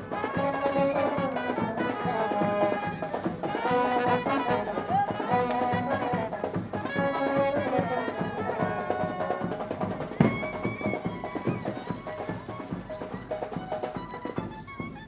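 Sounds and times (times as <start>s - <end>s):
wedding band music: 0.0s - 15.0s
loud drum hit: 9.4s - 11.3s.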